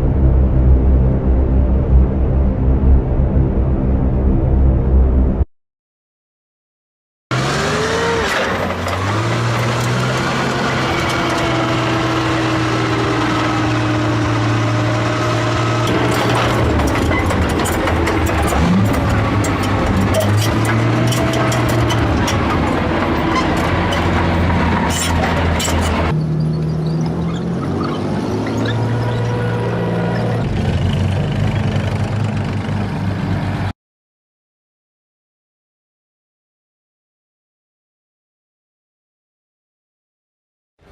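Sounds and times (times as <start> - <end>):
heavy vehicle engine drone: 0.0 - 5.5, 7.3 - 33.7
sharp clicks and knocks: 15.9 - 26.1.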